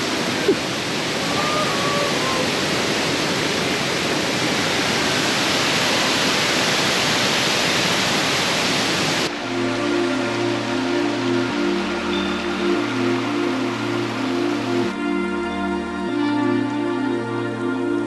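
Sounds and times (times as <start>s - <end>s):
waterfall rushing: 0.0s - 17.6s
music: 9.3s - 18.0s.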